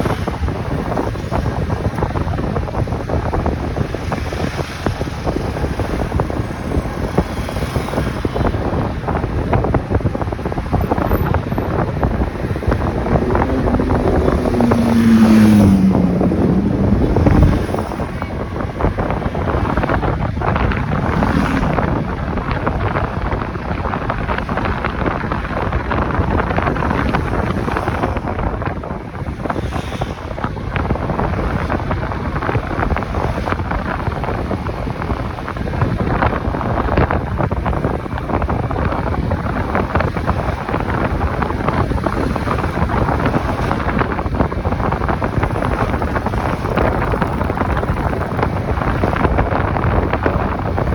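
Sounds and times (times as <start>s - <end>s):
motorcycle engine and road noise: 0.0s - 50.9s
wind buffeting microphone: 0.0s - 50.9s
passing engine note: 11.8s - 18.5s.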